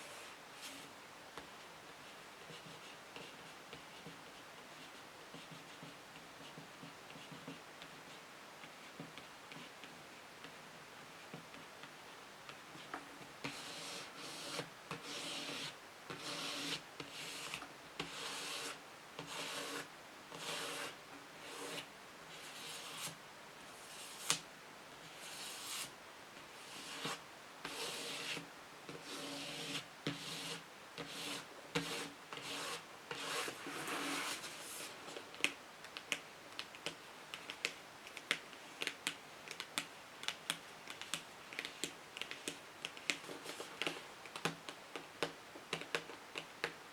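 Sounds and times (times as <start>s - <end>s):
scratching on a book: 1.9s - 10.0s, 12.7s - 23.2s, 26.6s - 35.2s.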